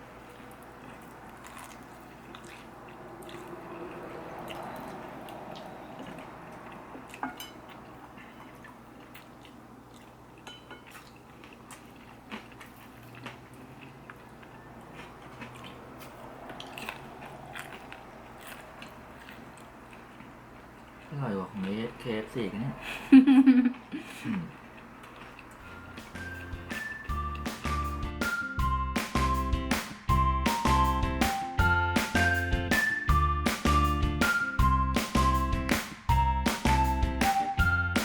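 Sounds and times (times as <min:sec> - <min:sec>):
person chewing crispy food: 0:00.0 - 0:21.8, 0:23.7 - 0:27.4.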